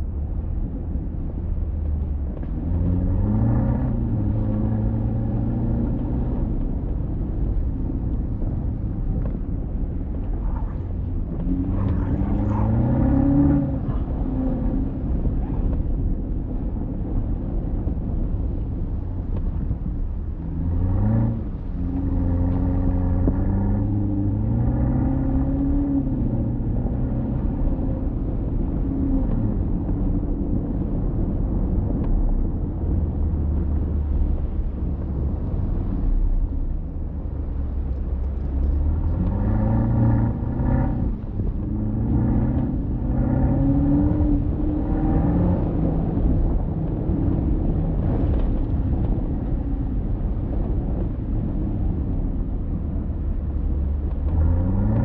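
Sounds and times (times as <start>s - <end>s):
road and tyre rumble: 0.0s - 55.0s
car engine accelerating: 0.1s - 55.0s.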